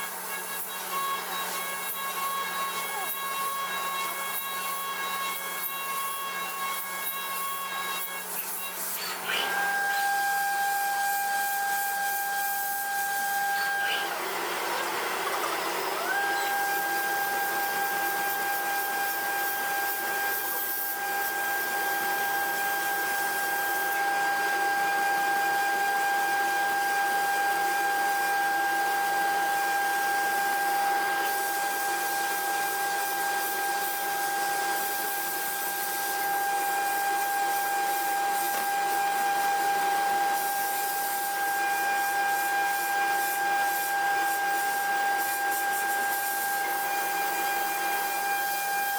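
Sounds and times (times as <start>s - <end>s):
milling machine spindle whine: 0.0s - 48.9s
hiss of metal cutting: 29.9s - 48.9s.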